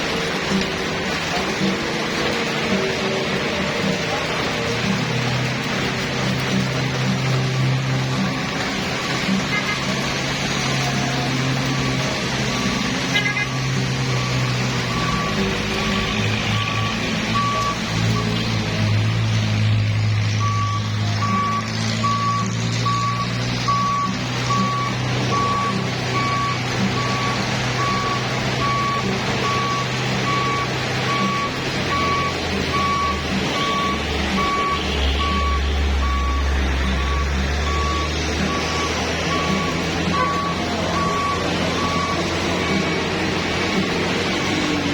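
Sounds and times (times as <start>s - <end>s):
diesel truck engine running: 0.0s - 44.9s
reversing alarm beeping: 11.6s - 18.4s, 20.4s - 43.3s.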